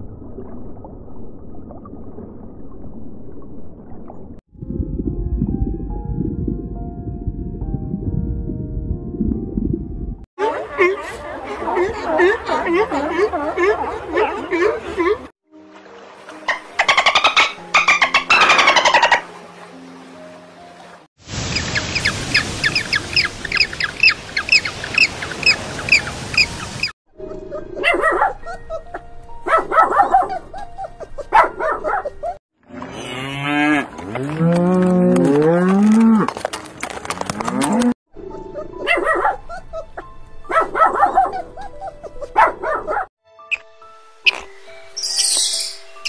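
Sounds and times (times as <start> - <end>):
high repeated calls: 21.5 - 26.9, 44.2 - 46.0
cows mooing: 32.7 - 36.4, 37.1 - 37.9.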